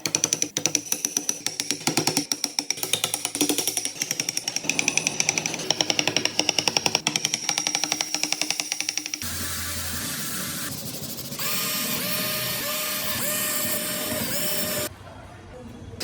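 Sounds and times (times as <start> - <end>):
rapid tapping of wood-carving tools: 0.0 - 9.3.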